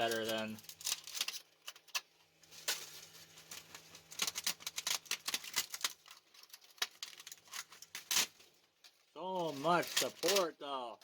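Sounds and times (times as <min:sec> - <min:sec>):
plastic snapping cracks: 0:03.6 - 0:08.4.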